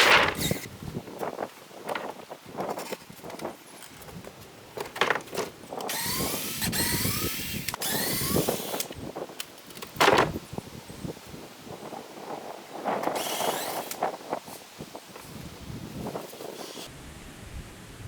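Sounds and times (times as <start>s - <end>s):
power drill whining: 5.9s - 8.9s, 13.2s - 14.0s.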